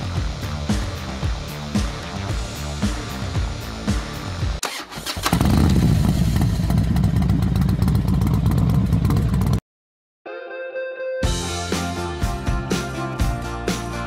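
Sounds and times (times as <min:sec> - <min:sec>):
music: 0:00.0 - 0:05.0, 0:10.3 - 0:14.0
motorcycle engine rumbling: 0:00.0 - 0:09.6.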